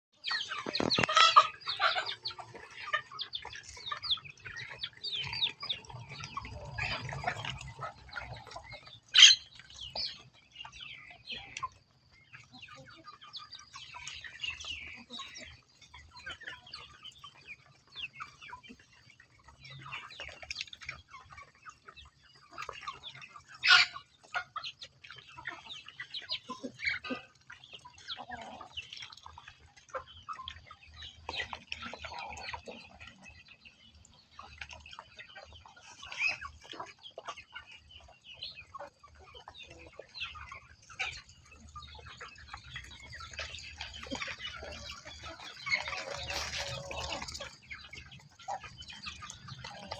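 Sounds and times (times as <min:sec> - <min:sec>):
poultry calling: 0:00.2 - 0:17.2, 0:22.5 - 0:24.6, 0:31.3 - 0:49.9.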